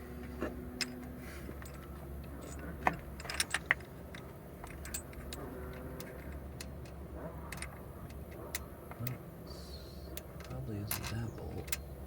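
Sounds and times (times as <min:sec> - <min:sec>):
metallic clicks of tools: 0:10.1 - 0:11.9.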